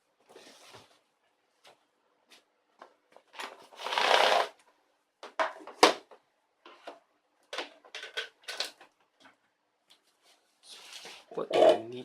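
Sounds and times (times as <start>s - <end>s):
rustle or scrape: 10.2s - 11.4s.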